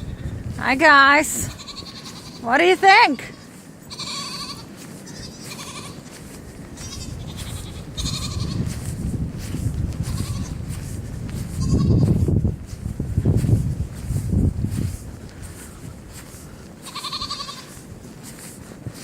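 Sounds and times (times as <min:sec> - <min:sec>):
goats bleating: 0:01.4 - 0:06.2, 0:06.8 - 0:08.7, 0:10.0 - 0:10.6, 0:16.8 - 0:17.8.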